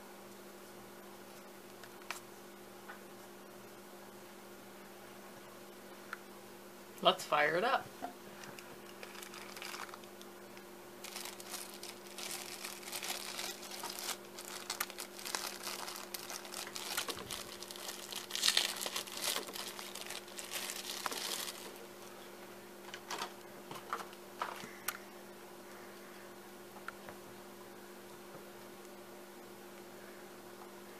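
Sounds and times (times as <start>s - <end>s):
electrical hum: 0.0s - 30.9s
plastic packaging crinkling: 8.4s - 22.1s.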